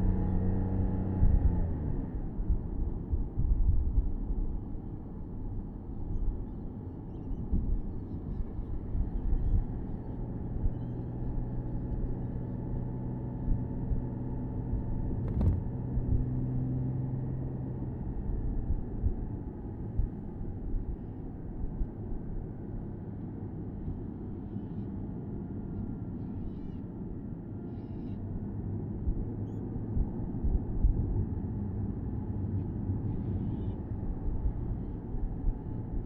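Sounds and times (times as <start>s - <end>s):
road and wind rumble: 0.0s - 36.0s
car engine cruising: 12.8s - 20.0s.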